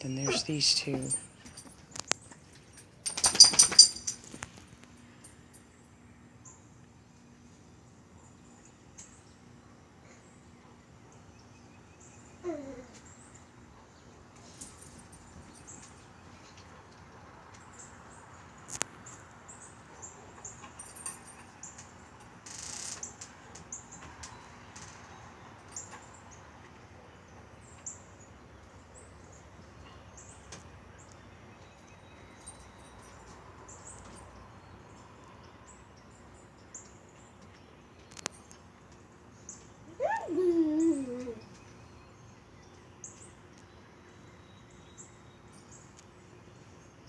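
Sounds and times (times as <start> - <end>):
rustle: 0.1 - 47.0
small birds chirping: 23.0 - 47.0.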